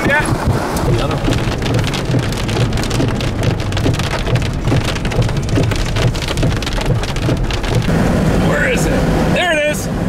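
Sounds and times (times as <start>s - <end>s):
heavy rain on windshield: 0.0s - 9.7s
low road rumble: 0.0s - 10.0s.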